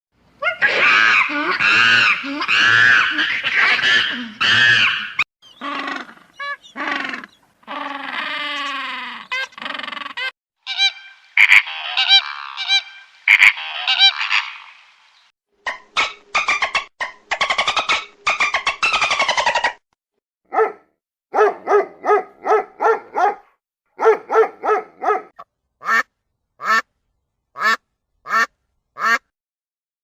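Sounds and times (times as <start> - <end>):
geese honking: 10.7 - 14.7.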